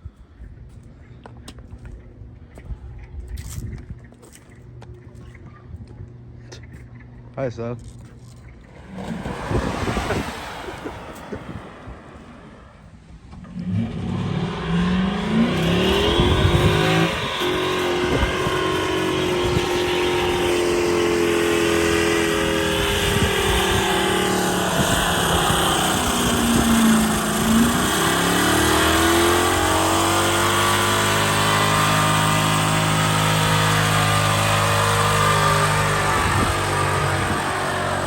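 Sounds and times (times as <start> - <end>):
car engine revving high: 8.6 - 38.0.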